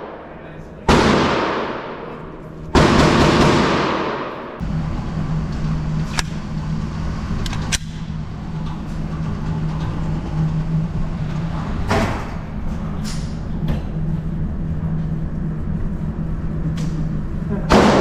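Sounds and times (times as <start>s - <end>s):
low droning hum: 0.0s - 18.0s.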